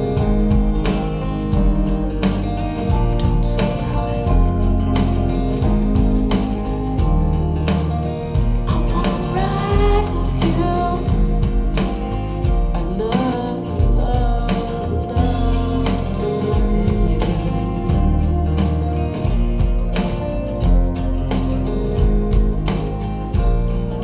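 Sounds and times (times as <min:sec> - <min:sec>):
bass guitar: 0:00.0 - 0:24.0
guitars: 0:00.0 - 0:24.0
steady drum beat: 0:00.0 - 0:24.0
person singing: 0:02.9 - 0:05.8, 0:08.7 - 0:19.0.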